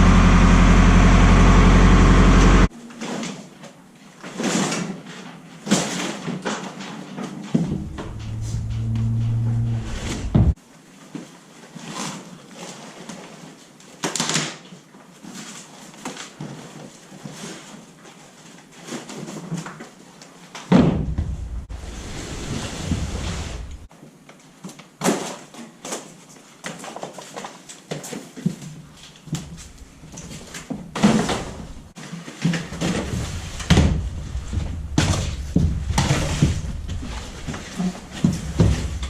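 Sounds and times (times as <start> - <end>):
low rumbling: 0.0 - 2.7, 7.5 - 10.6, 21.0 - 23.9, 32.7 - 39.0
knocks and clatter of freezers: 7.6 - 10.6, 28.0 - 39.0
loud thump: 7.6 - 10.6, 20.8 - 21.7, 32.8 - 39.0.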